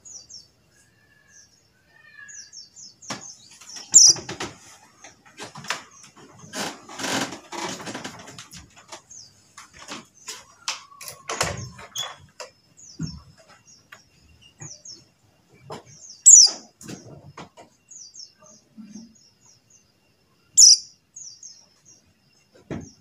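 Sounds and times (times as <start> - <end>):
bird chirping: 0.0 - 6.6, 8.3 - 23.0
scattered clicks and knocks: 3.1 - 14.9.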